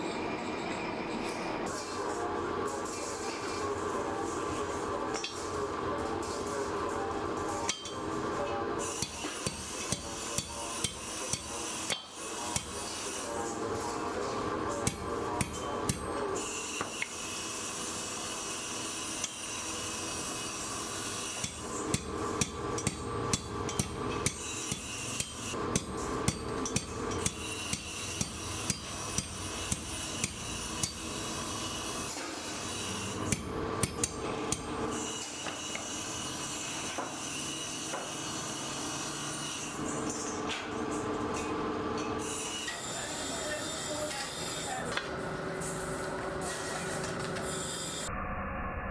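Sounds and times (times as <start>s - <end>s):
steady machine hum: 42.8s - 48.1s.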